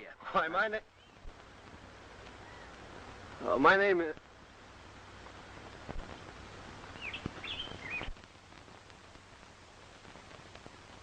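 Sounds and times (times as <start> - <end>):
steady background hiss: 0.0 - 11.0
bird chirping: 0.8 - 1.3, 2.3 - 2.8, 6.9 - 8.2.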